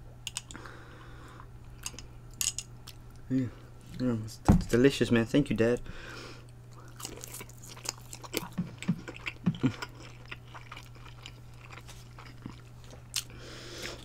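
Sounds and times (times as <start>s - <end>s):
low steady hum: 0.0s - 14.0s
person chewing food: 6.4s - 14.0s.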